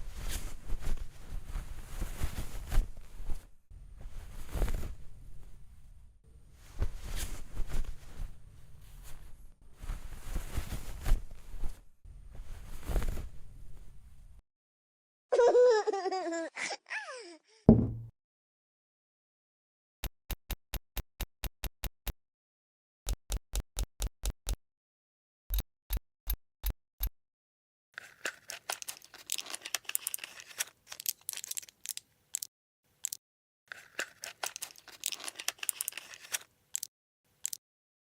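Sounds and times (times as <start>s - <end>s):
plastic packaging crinkling: 28.1s - 32.0s, 33.7s - 36.9s.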